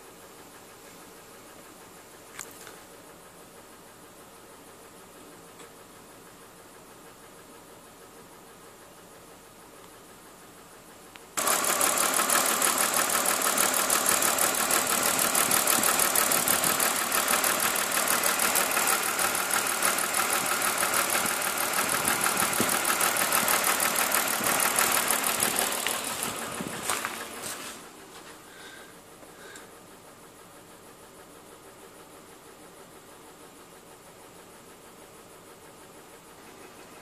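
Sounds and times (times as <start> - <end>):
car engine starting and running: 5.4 - 37.0
engine misfiring: 11.4 - 30.4.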